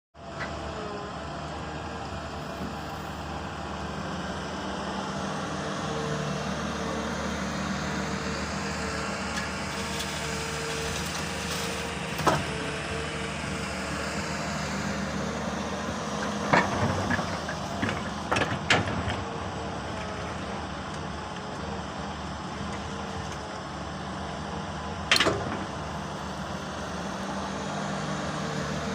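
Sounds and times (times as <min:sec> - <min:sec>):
excavator diesel engine running: 0:00.2 - 0:28.9.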